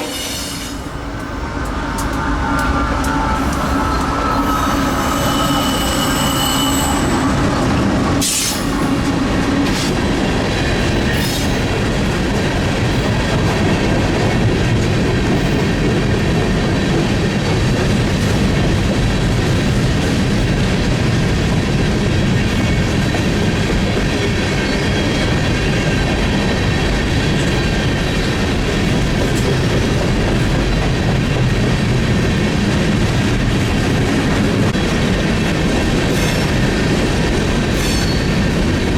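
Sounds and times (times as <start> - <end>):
train wheel squeal: 0.0 - 1.0, 2.1 - 8.9, 11.0 - 11.7, 24.5 - 25.8, 37.6 - 38.6
freight train cars rumbling: 0.0 - 38.9.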